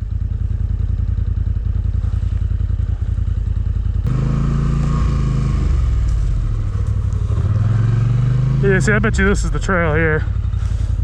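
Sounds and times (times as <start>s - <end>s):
atv engine revving: 3.8s - 11.0s.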